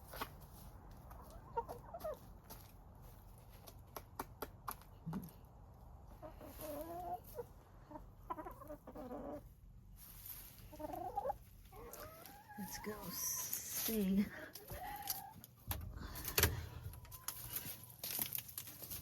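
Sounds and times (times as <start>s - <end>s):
hens clucking: 0.0s - 2.8s, 5.9s - 17.9s.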